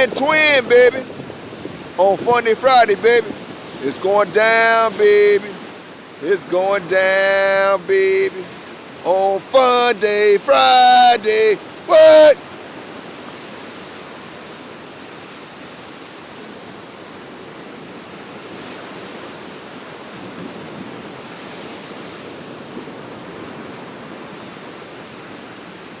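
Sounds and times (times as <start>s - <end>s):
steady rushing noise: 0.0s - 12.6s.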